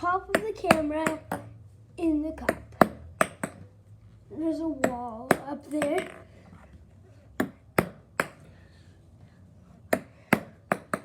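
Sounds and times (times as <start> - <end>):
ping-pong ball bouncing: 0.2 - 1.5, 2.4 - 3.8, 4.7 - 6.3, 7.4 - 8.4, 9.9 - 11.0.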